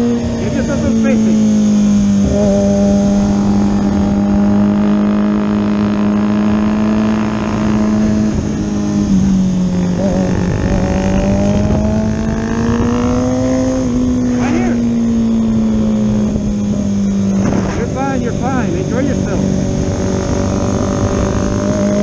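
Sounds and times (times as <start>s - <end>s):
motorcycle engine at high revs: 0.0s - 22.0s
wind rush: 7.5s - 22.0s.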